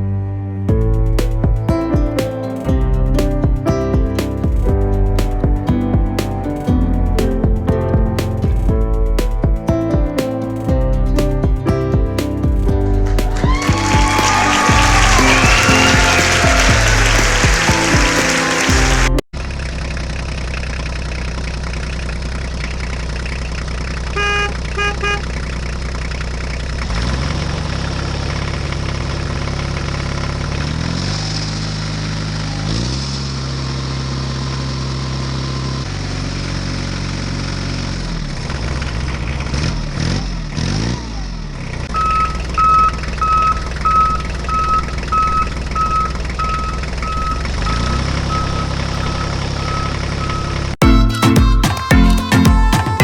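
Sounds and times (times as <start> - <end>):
tractor engine revving: 14.7 - 24.2, 41.9 - 50.8
reversing alarm beeps: 42.0 - 50.8
short beeps: 42.0 - 50.8.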